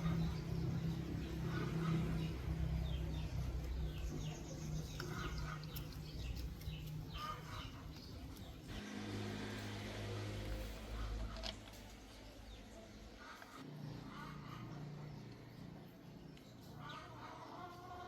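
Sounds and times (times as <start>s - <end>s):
birds chirping: 0.0s - 9.1s.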